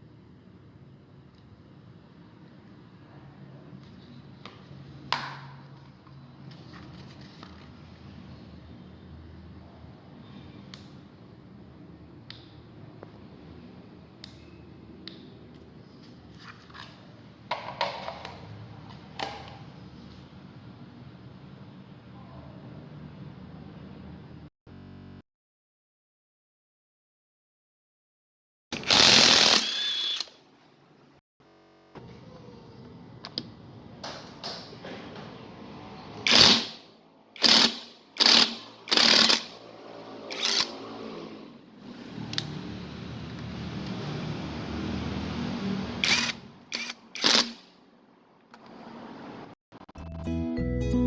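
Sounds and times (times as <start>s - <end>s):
hard objects clicking and knocking: 17.5s - 19.6s
impact wrench bursts: 28.7s - 30.4s, 36.2s - 41.0s, 46.0s - 47.8s.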